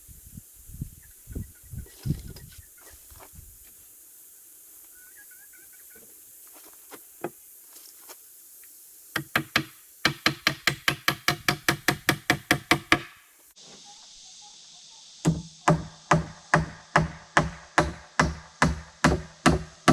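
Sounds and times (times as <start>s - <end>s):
hammer striking nails into wood: 9.2s - 13.2s, 15.3s - 19.9s.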